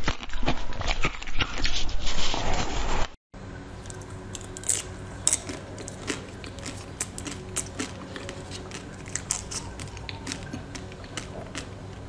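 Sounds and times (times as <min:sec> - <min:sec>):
chewing crunchy sweet: 0:03.8 - 0:12.0.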